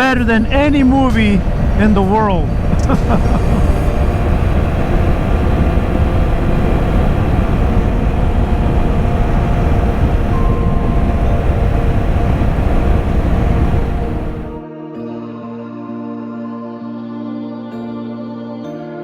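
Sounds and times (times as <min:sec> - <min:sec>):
motorcycle engine and wind noise: 0:00.0 - 0:14.6
soft ambient music: 0:00.0 - 0:19.0.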